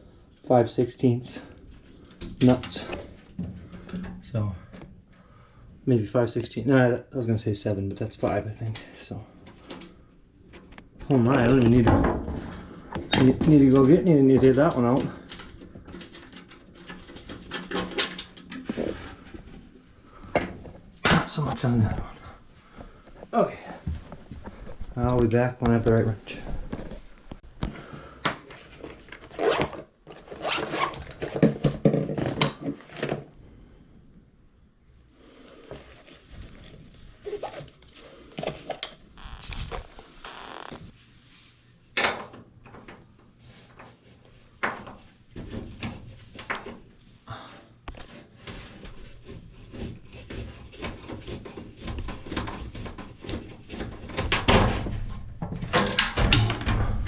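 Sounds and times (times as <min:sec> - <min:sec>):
knocks and scrapes on metal: 0:48.0 - 0:57.0.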